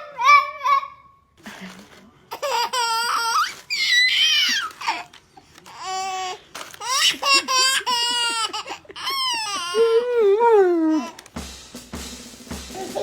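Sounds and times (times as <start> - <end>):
baby laughing and squealing: 2.3 - 5.1, 5.7 - 11.3.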